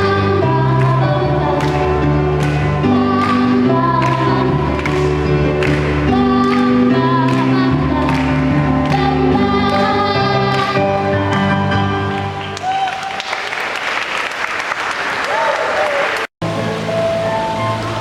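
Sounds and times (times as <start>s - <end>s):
children's choir singing: 0.0s - 12.0s.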